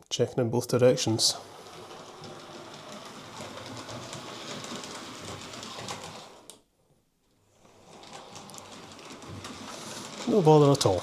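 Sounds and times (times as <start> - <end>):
wheels clicking over rail joints: 1.5 - 6.6, 7.7 - 11.0
model train motor whirr: 7.8 - 11.0.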